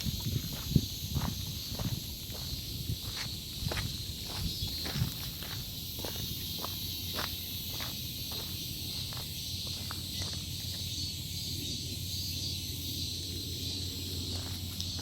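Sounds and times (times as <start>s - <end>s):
footsteps: 0.0s - 10.9s
cicadas singing: 0.0s - 15.0s.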